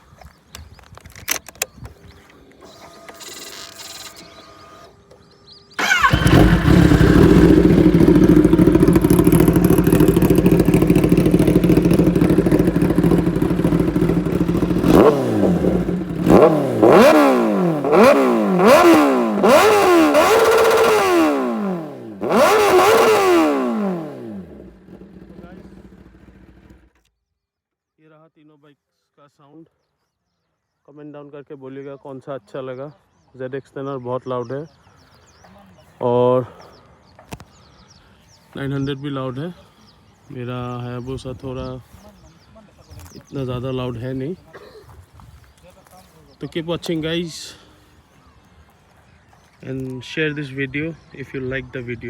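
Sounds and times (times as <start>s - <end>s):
motorcycle engine revving: 5.7s - 27.0s.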